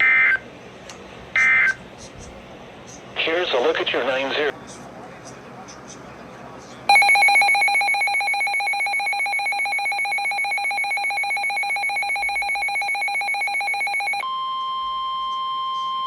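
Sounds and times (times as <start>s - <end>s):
electronic alert alarm tone: 6.9s - 16.0s.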